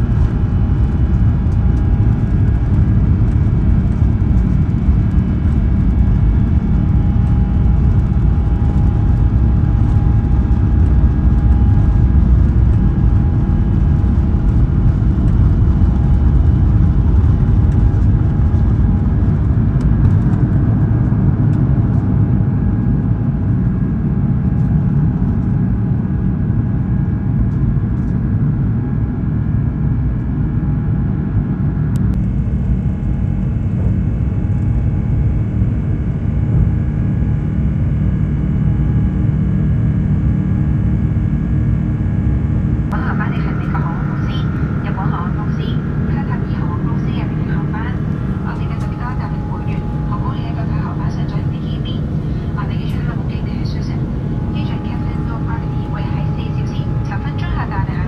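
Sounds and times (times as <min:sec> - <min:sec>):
faint steady tones: 0:42.9 - 0:58.0
jet engines roaring: 0:42.9 - 0:58.0.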